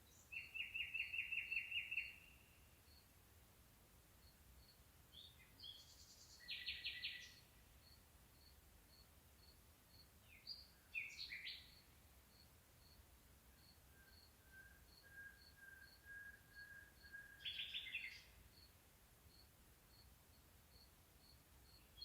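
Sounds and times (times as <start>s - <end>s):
faint bird song: 0.0s - 22.0s.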